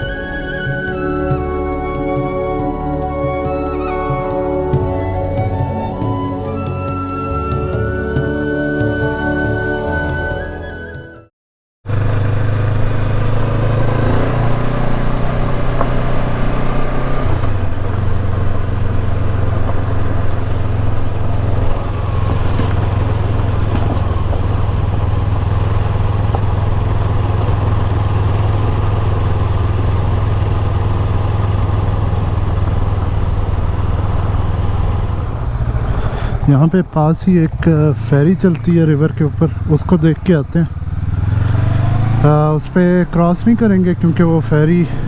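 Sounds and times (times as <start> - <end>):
motorcycle engine cruising: 0.0 - 11.3, 11.9 - 45.0
wind and road noise: 11.9 - 45.0.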